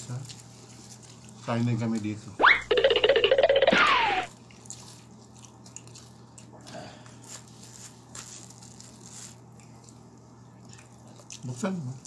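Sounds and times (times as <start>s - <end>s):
person chewing crispy food: 4.3s - 11.7s.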